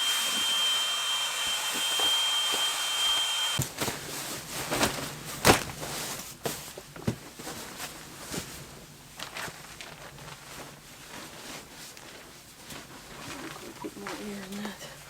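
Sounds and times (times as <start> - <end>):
electric air pump whining: 0.0 - 3.7
knocks and rustling of bedding: 3.6 - 13.6.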